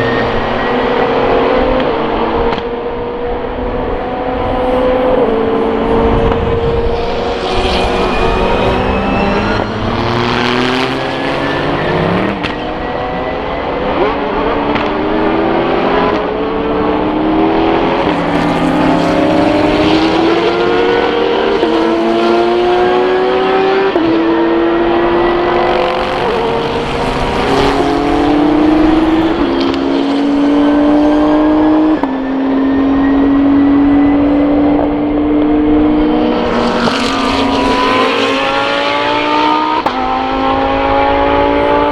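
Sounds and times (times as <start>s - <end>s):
cars passing by: 0.0s - 41.9s
racing cars accelerating: 0.0s - 41.9s.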